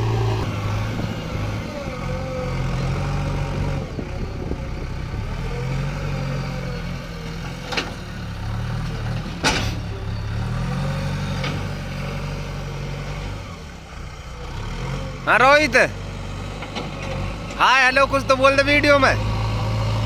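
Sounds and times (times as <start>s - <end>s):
diesel engine revving: 0.0s - 20.0s.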